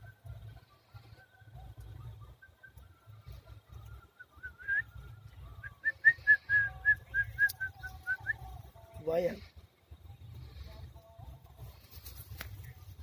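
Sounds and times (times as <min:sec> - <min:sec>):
bird rising whistled notes: 0:01.8 - 0:08.5.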